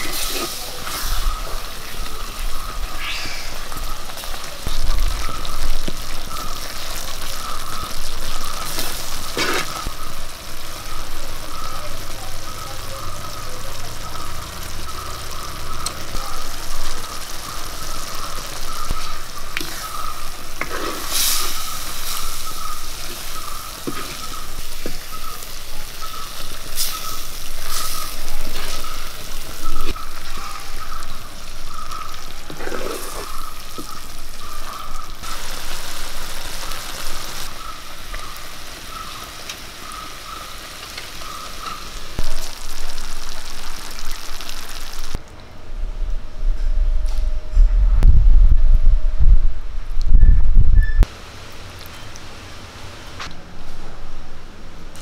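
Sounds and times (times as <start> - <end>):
eggs sizzling in a pan: 0.0 - 45.2
spatula scraping a pan: 20.6 - 22.5.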